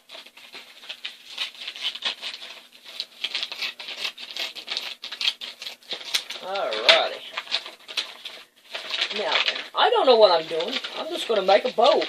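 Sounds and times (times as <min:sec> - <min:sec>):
scissors cutting a bag: 0:00.0 - 0:09.7.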